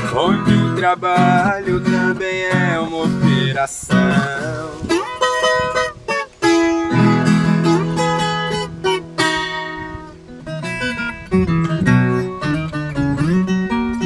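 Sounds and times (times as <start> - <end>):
acoustic plucked strings melody: 0.0 - 14.0
held bass notes: 0.0 - 14.0.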